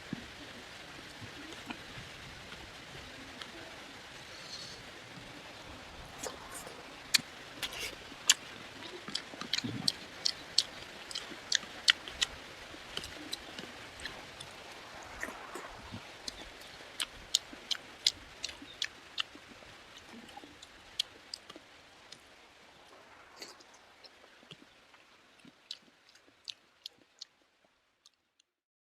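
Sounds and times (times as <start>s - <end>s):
person chewing with mouth clicks: 6.0s - 22.3s, 25.4s - 27.4s.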